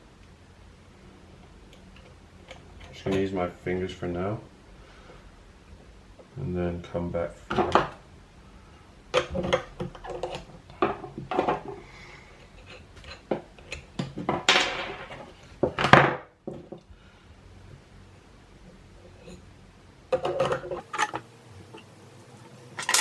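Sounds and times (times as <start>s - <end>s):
skateboard hardware clinking: 20.8s - 21.2s, 22.8s - 23.0s.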